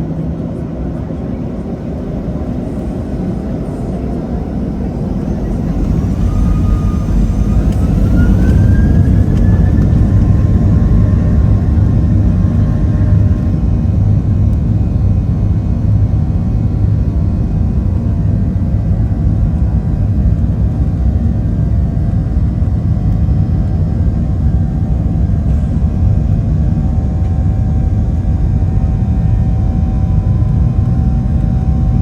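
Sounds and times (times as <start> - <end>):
jet engines spooling up: 2.4 - 13.6.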